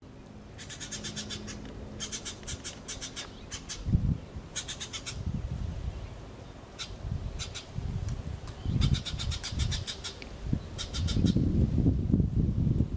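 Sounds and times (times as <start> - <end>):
birds chirping: 0.5 - 7.7, 8.5 - 11.5.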